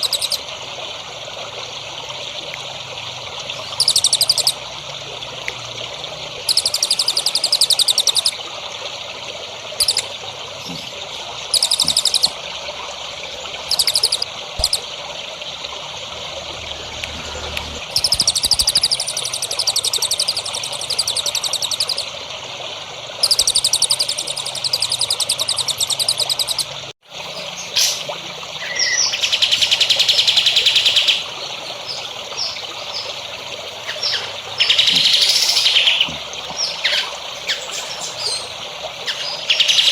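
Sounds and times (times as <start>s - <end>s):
songbird high-pitched trills: 0.0s - 0.4s, 3.7s - 4.6s, 6.5s - 8.4s, 9.8s - 10.1s, 11.5s - 12.3s, 13.7s - 14.8s, 17.9s - 22.1s, 23.2s - 39.9s
running water trickling: 0.0s - 39.9s.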